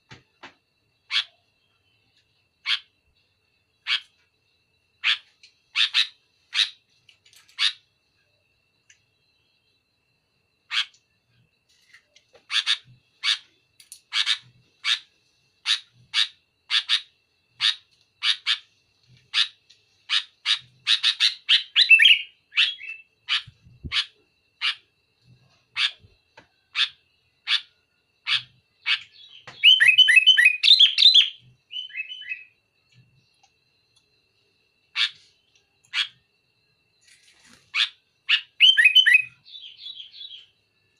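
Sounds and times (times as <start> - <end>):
bird chattering: 26.7 - 32.5, 37.7 - 40.4.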